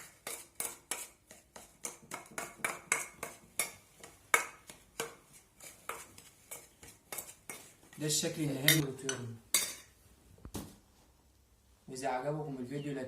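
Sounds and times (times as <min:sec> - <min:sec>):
spoon scraping against a dish: 0:00.0 - 0:10.0.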